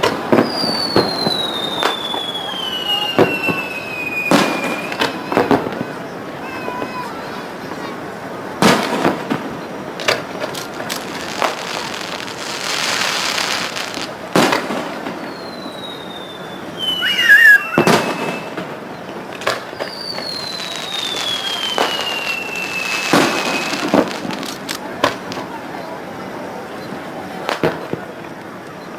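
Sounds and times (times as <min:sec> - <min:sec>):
fireworks crackling: 0:00.0 - 0:28.8
fireworks bursting with bangs: 0:00.0 - 0:28.9
firework whistles sliding down: 0:00.3 - 0:05.8, 0:15.1 - 0:24.6.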